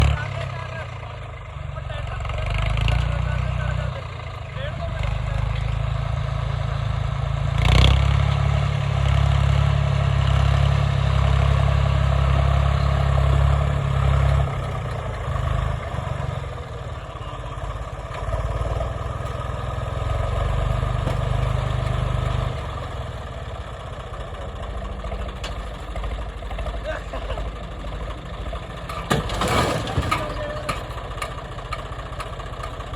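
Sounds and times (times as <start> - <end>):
tractor diesel engine droning: 0.0 - 32.9.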